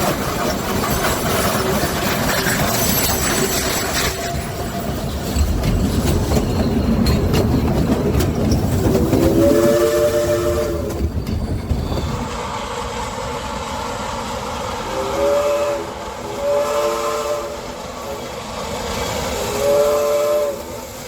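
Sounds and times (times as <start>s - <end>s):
train rumble and wheel clatter: 0.0s - 21.0s
train chime whistle: 9.2s - 11.2s, 14.8s - 18.3s, 19.4s - 20.8s.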